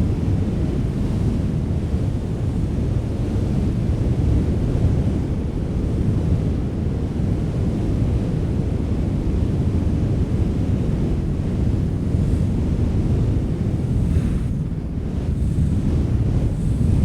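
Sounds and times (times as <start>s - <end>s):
strong wind rumbling: 0.0s - 17.0s
wind gusts hissing: 11.8s - 17.0s.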